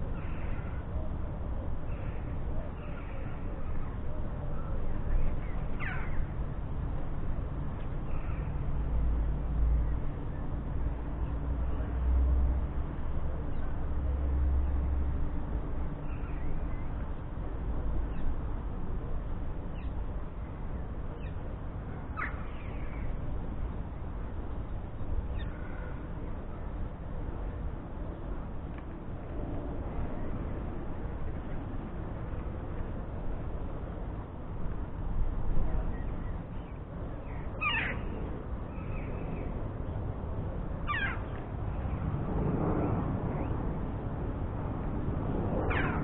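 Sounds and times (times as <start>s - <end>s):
steady low rumble: 0.0s - 46.0s
bird calls: 22.2s - 23.1s, 37.3s - 38.1s, 40.9s - 41.4s.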